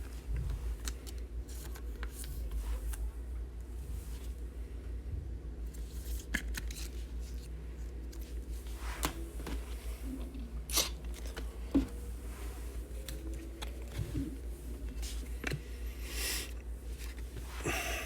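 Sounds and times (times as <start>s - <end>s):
foil wrappers and cards rustling: 5.8s - 8.4s
low hum: 7.7s - 18.0s.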